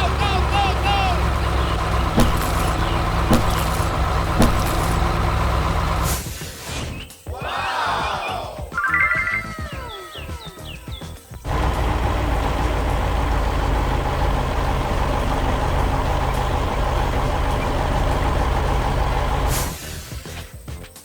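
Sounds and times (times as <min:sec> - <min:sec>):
heavy truck engine running: 0:00.0 - 0:06.4, 0:11.4 - 0:20.4.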